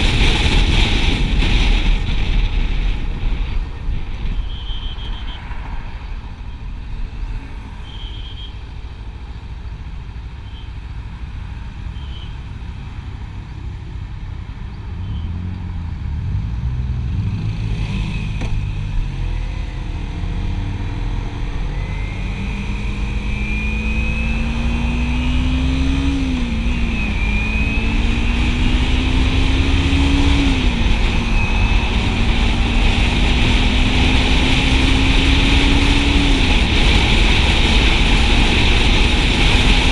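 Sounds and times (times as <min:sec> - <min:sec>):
motorcycle engine accelerating: 0:00.0 - 0:05.0, 0:15.0 - 0:39.9
wind rush: 0:00.0 - 0:07.8, 0:16.4 - 0:39.9.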